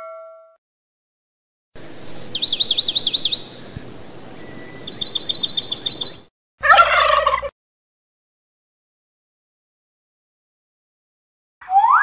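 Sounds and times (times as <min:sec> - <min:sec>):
rough low bird call: 0:01.8 - 0:06.3
whistled bird calls: 0:01.8 - 0:06.3, 0:11.6 - 0:12.0.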